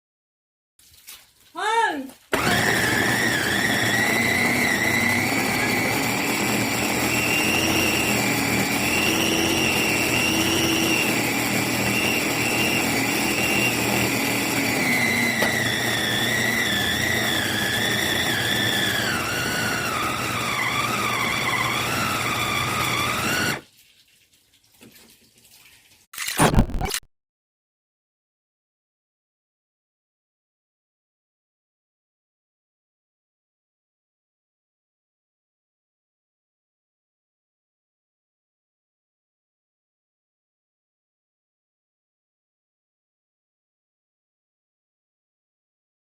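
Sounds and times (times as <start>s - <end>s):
food processor motor whining: 2.3s - 23.6s, 26.3s - 27.0s.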